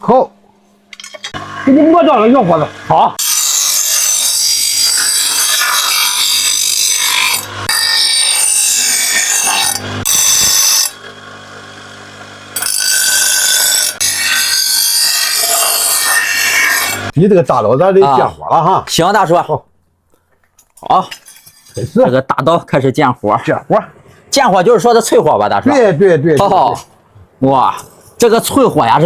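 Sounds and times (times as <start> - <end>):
grinder motor hum: 1.0 - 17.2
grinder grinding steel: 1.3 - 17.2, 21.1 - 22.1.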